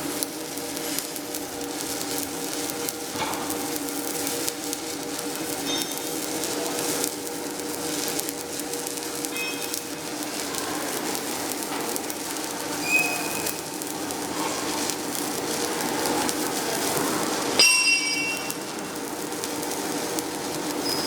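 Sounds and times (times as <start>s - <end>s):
welding arc crackling: 0.0s - 21.0s
metallic clinks: 17.6s - 18.5s.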